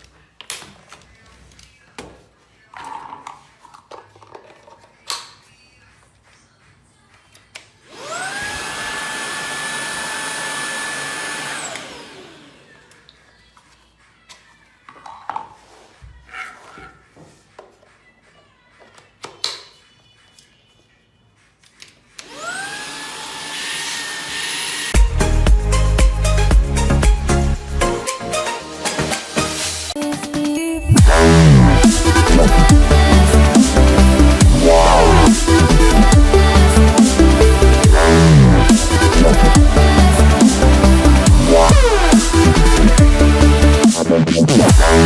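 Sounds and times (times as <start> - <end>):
vacuum cleaner motor whining: 7.9 - 13.0, 22.2 - 25.0.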